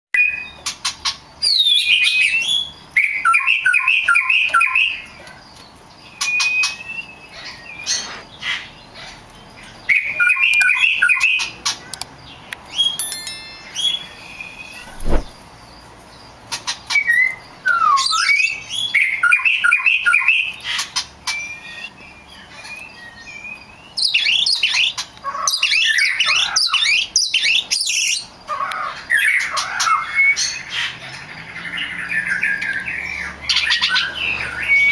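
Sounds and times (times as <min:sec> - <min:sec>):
magpie-robin singing whistled notes: 0:00.2 - 0:00.7, 0:01.4 - 0:09.1, 0:09.8 - 0:11.6, 0:12.3 - 0:15.2, 0:16.6 - 0:34.9.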